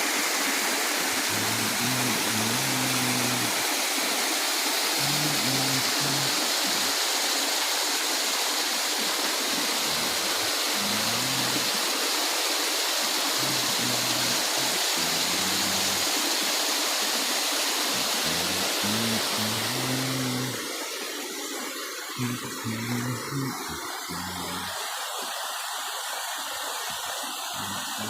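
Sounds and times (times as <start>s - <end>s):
rushing water: 0.0s - 28.0s.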